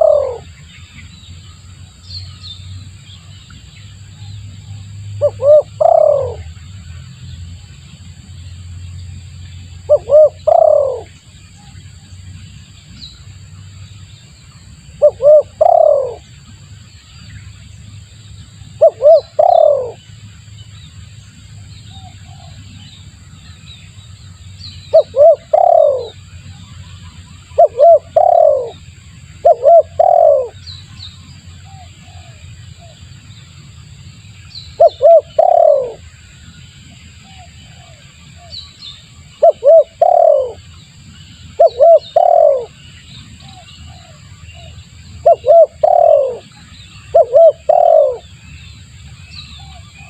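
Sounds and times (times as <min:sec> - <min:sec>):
dove cooing: 0:00.0 - 0:00.5, 0:05.2 - 0:06.5, 0:09.9 - 0:11.1, 0:15.0 - 0:16.2, 0:18.8 - 0:20.0, 0:24.9 - 0:26.2, 0:27.6 - 0:28.8, 0:29.4 - 0:30.6, 0:31.7 - 0:33.0, 0:34.8 - 0:36.0, 0:39.4 - 0:40.6, 0:41.6 - 0:42.8, 0:43.5 - 0:46.5, 0:47.1 - 0:48.3
faint high bird chirps: 0:21.8 - 0:28.8, 0:41.2 - 0:50.0.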